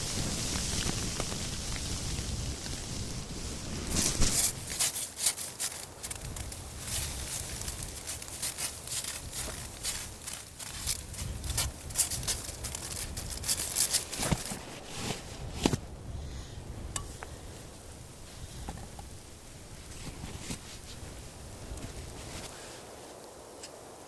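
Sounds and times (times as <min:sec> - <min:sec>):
camping gear crinkling and clicking: 0:00.0 - 0:15.9.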